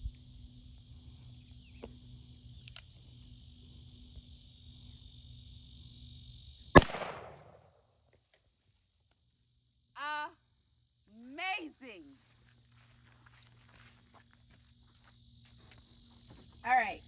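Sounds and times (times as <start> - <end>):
high insect buzz: 0.0 - 7.6, 9.4 - 17.0
revolver gunshot: 6.8 - 7.6.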